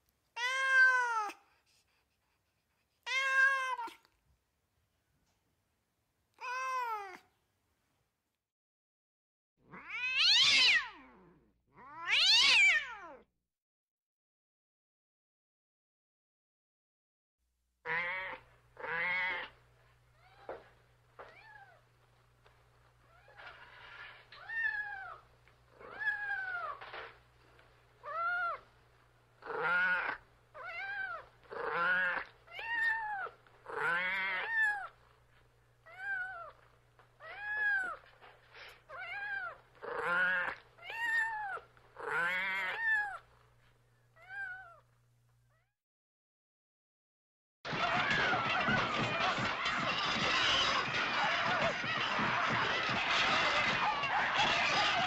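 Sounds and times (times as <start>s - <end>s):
cat meowing: 0.4s - 1.4s, 3.1s - 4.1s, 6.4s - 7.2s, 9.7s - 11.2s, 11.8s - 13.2s, 17.9s - 19.6s, 29.4s - 34.9s, 38.9s - 43.2s, 44.2s - 44.8s.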